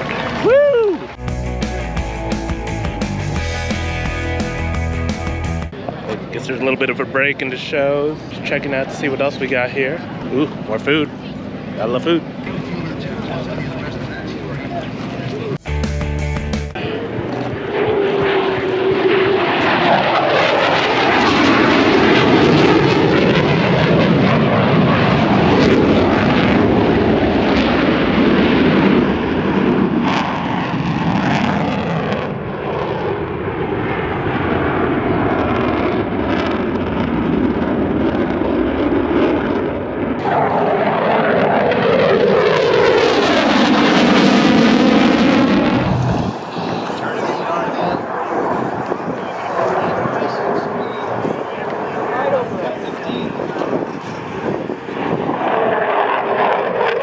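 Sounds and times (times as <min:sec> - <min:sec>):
plane flying past overhead: 0:16.8 - 0:57.0.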